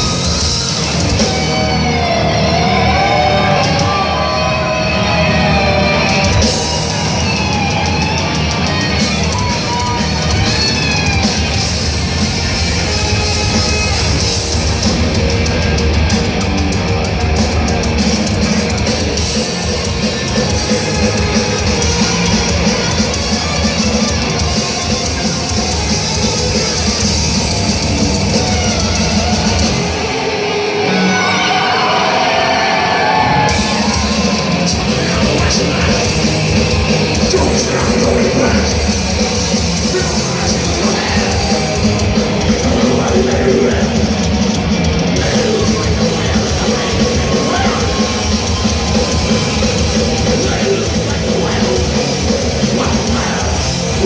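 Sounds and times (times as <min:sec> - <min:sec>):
heavy metal band playing live: 0:00.0 - 0:54.0
lead guitar line: 0:00.0 - 0:54.0.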